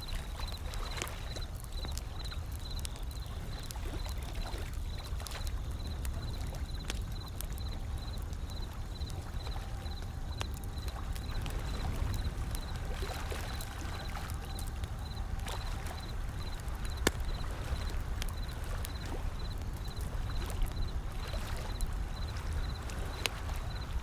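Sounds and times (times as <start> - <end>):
wood fire crackling and popping: 0.0 - 24.0
ocean waves: 7.8 - 24.0.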